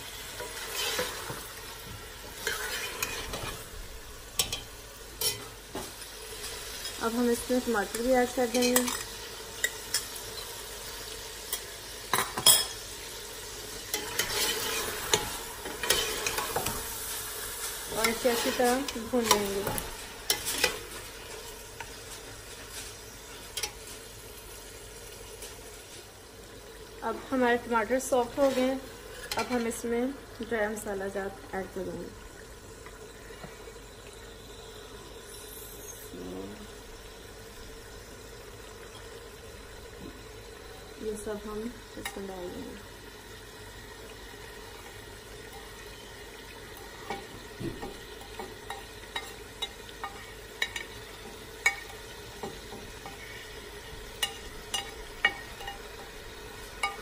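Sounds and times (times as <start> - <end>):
meat sizzling in oil: 0.0 - 57.0
wooden spatula scraping pot: 0.4 - 1.5, 2.4 - 3.7, 13.9 - 16.8.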